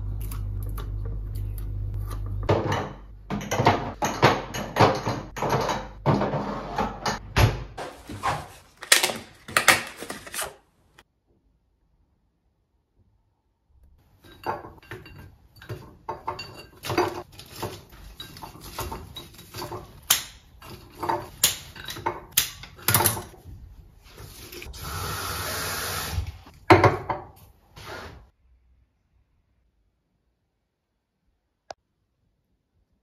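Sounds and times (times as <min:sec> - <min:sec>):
dishes and cutlery clinking: 0:02.5 - 0:07.2, 0:14.2 - 0:23.4.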